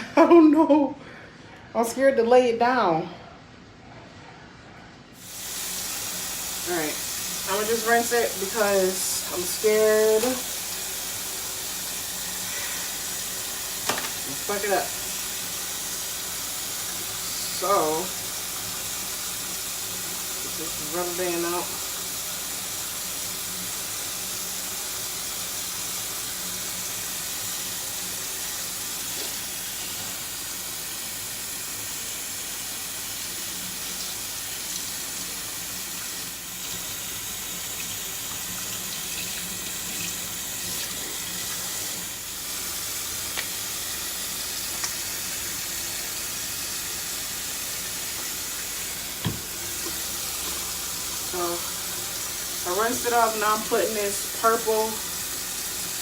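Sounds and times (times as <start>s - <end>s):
tap water running into sink: 5.2s - 56.0s.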